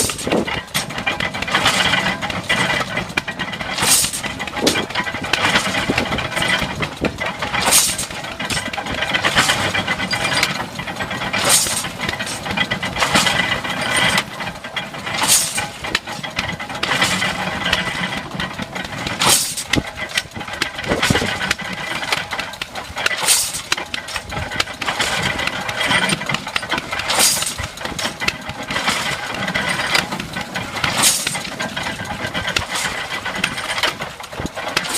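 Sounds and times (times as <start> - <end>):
hay baler mechanical clatter: 0.0 - 34.9
sharp metal clank: 3.7 - 6.8, 7.5 - 10.7, 11.3 - 14.3, 15.1 - 17.9, 19.2 - 20.3, 23.0 - 24.3, 25.9 - 28.2, 30.9 - 31.5.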